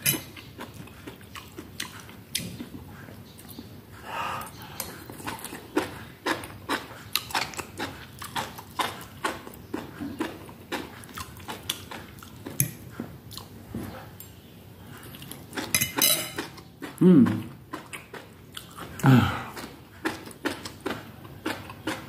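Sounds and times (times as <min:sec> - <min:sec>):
person chewing: 0:00.0 - 0:13.6, 0:14.9 - 0:22.0.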